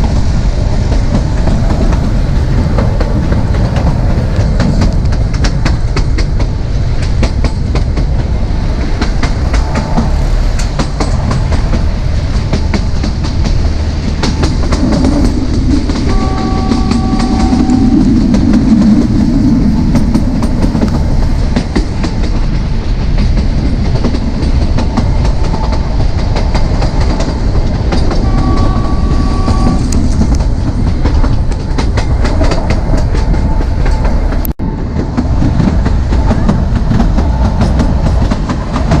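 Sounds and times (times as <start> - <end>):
train coaches rumbling: 0.0 - 39.0
wheels clacking over rail joints: 0.0 - 39.0
two-note train horn: 16.0 - 18.5, 28.1 - 30.1.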